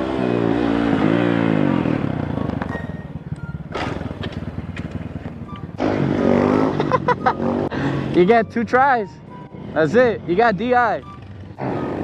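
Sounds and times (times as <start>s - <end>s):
small motorbike engine revving: 3.7s - 8.2s.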